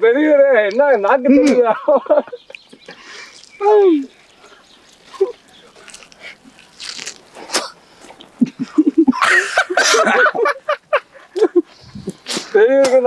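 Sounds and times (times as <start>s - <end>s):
people laughing: 1.2s - 3.1s, 8.4s - 11.8s
wet sucking and spitting: 2.5s - 8.4s, 11.7s - 12.6s.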